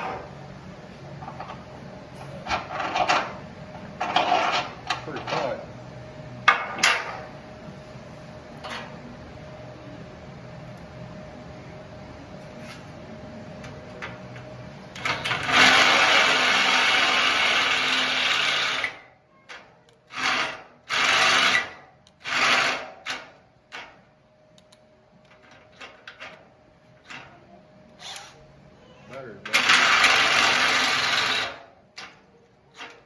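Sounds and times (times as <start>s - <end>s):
power drill running: 15.1s - 19.0s, 20.1s - 22.9s, 29.6s - 31.6s.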